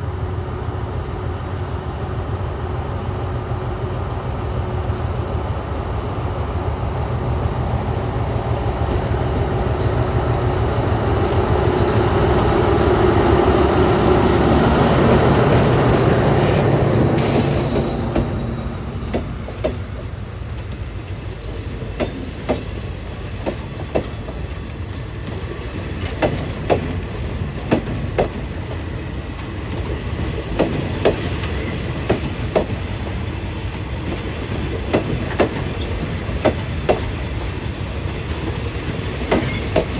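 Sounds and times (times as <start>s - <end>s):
locomotive running noise: 0.0s - 39.9s
train cars rumbling: 0.0s - 39.9s
wheels clacking over rail joints: 8.7s - 39.9s.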